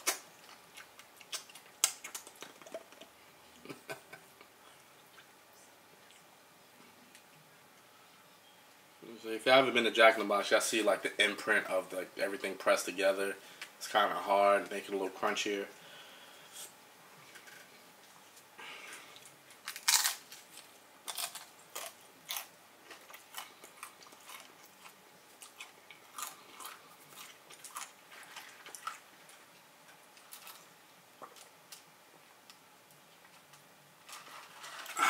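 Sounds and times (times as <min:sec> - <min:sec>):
biting crunchy taco: 0:00.0 - 0:03.1, 0:18.9 - 0:32.6
chewing with crisp crackles: 0:00.0 - 0:08.8, 0:16.5 - 0:35.0.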